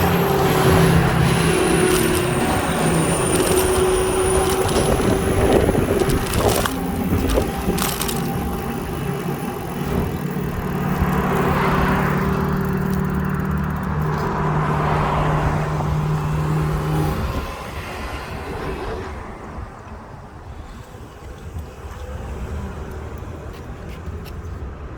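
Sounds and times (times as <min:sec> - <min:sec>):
vehicle engine running: 0:00.0 - 0:17.6
wind rumble on microphone: 0:00.0 - 0:24.1.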